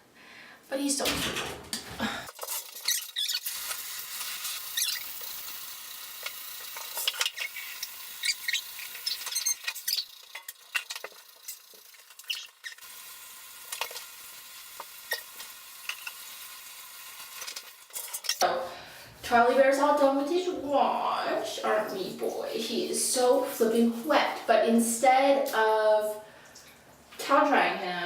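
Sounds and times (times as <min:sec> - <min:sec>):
running water spraying: 0:02.3 - 0:18.4
short squeaks and clicks: 0:02.5 - 0:05.3, 0:06.2 - 0:12.9.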